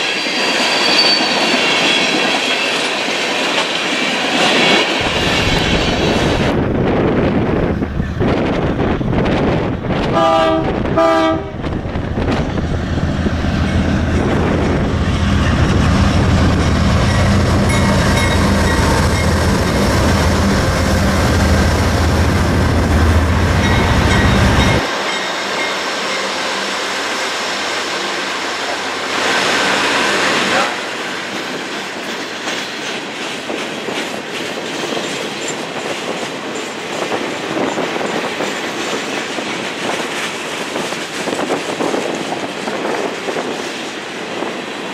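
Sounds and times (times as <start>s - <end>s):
freight train rumbling: 0.0s - 44.9s
diesel locomotive horn blasts: 10.0s - 11.8s.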